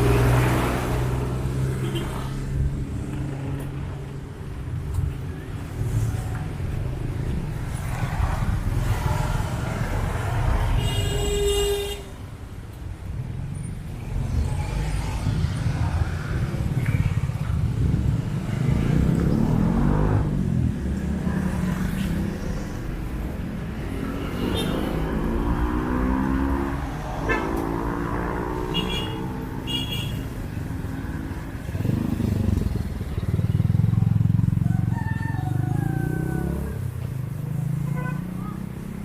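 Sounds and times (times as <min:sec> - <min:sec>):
car and motorcycle engines passing: 0:00.0 - 0:39.0
engines revving: 0:13.9 - 0:34.6.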